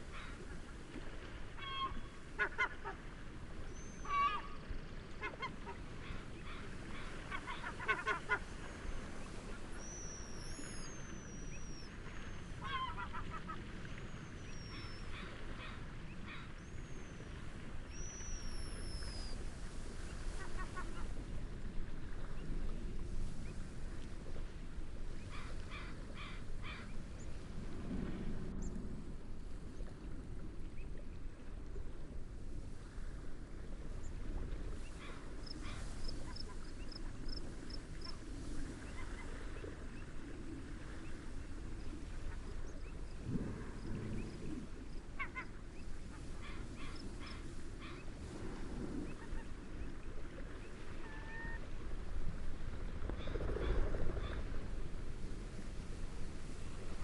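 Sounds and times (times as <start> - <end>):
waves: 0.0 - 57.0
wind: 0.0 - 57.0
waterbirds honking: 1.6 - 3.1, 3.7 - 10.5, 11.1 - 16.7.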